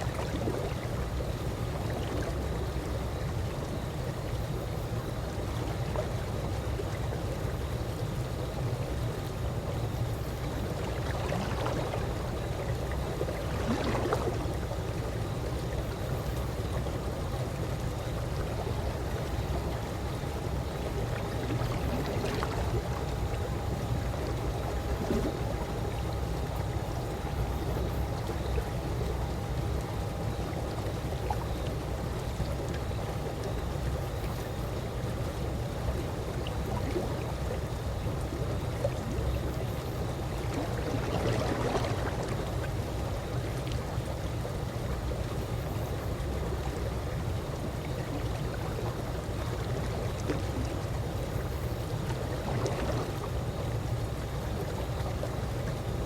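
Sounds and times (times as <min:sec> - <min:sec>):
pool water lapping: 0:00.0 - 0:56.0
water splashing: 0:13.4 - 0:14.6, 0:40.4 - 0:42.6, 0:51.4 - 0:53.5.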